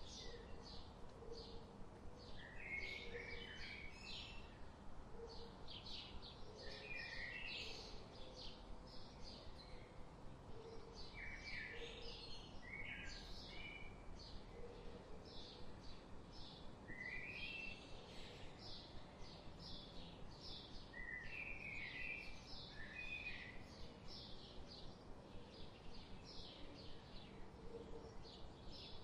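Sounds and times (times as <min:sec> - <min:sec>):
songbirds chirping: 0:00.0 - 0:29.0.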